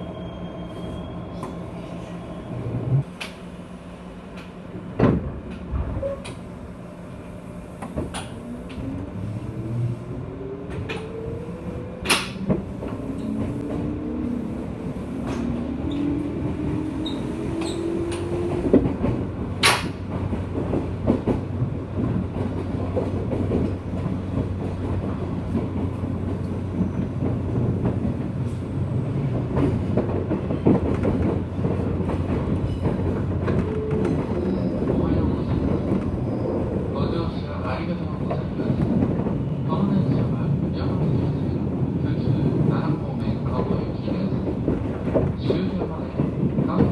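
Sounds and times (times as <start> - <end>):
train low rumble: 0.0 - 46.9.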